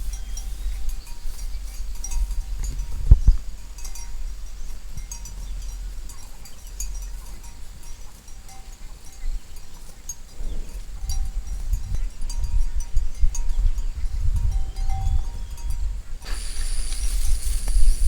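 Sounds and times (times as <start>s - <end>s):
cowbells clinking: 0.0s - 18.0s
steady low rumble: 10.2s - 18.0s.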